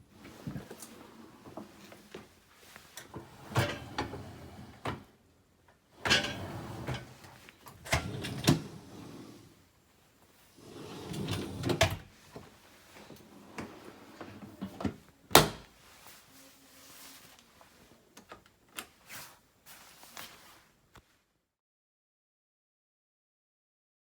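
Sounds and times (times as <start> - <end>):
dishwasher racks sliding and knocking: 0.1 - 2.3, 2.9 - 5.1, 6.0 - 9.6, 10.6 - 15.6.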